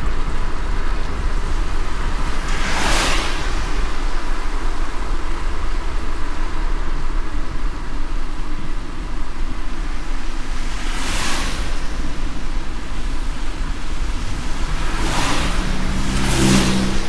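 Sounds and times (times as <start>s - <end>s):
car swish: 0.0s - 6.6s, 9.6s - 17.0s
road rumble: 0.0s - 17.0s
tyres hissing in rain: 0.0s - 17.0s.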